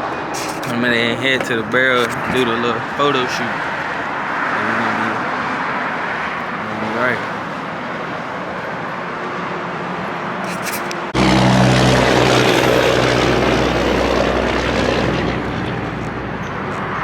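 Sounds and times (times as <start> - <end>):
heavy rushing noise: 9.7 - 16.7.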